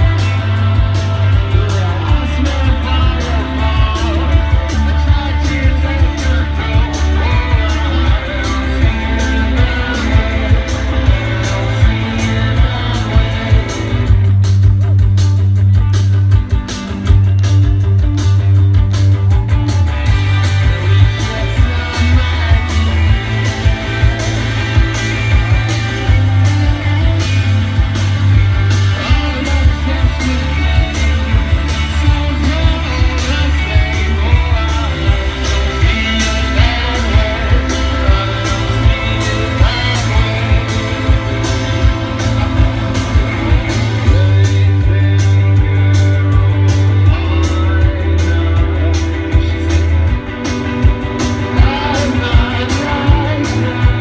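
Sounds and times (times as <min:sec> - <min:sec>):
person singing: 0:00.0 - 0:14.4, 0:19.3 - 0:54.0
bass guitar: 0:00.0 - 0:54.0
electric guitars: 0:00.0 - 0:54.0
steady drum beat: 0:00.0 - 0:54.0.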